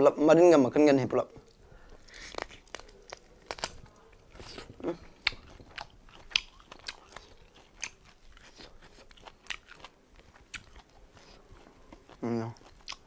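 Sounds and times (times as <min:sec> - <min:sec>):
person chewing meat: 0:01.4 - 0:13.0
sharp clicks and crunches: 0:01.5 - 0:10.8.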